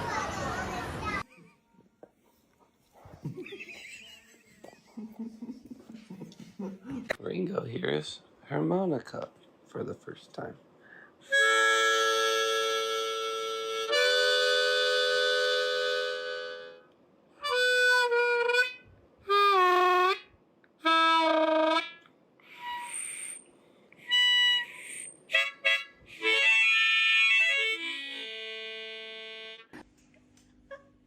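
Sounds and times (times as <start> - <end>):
harmonica chords: 11.2 - 29.8.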